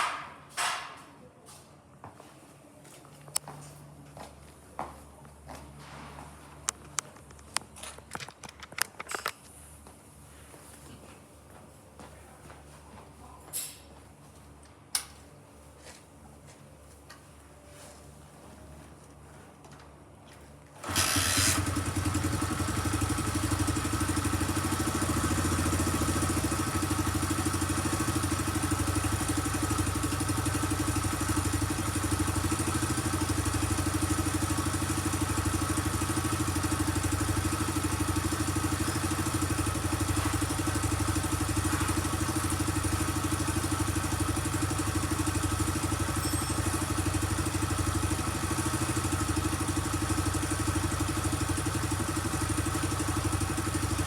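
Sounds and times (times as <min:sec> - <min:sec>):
motorcycle engine idling: 0:20.8 - 0:54.0.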